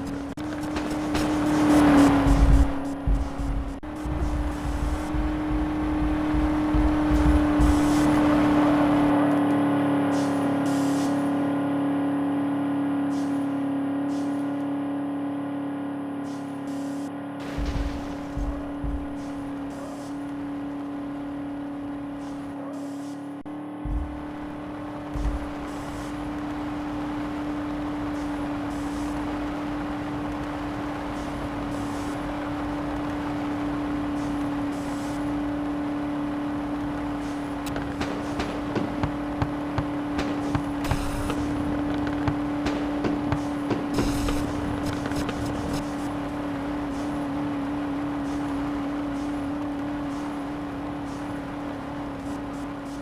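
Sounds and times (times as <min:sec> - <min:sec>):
vehicle driving with droning hum: 0:00.0 - 0:53.0
dull low thumps: 0:00.3 - 0:08.6, 0:17.4 - 0:19.6, 0:23.7 - 0:26.0, 0:37.8 - 0:45.9.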